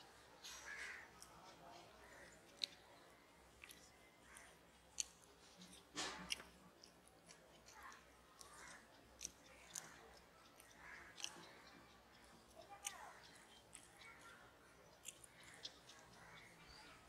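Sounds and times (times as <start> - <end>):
person chewing: 3.5 - 12.2, 12.8 - 13.9, 15.0 - 15.8.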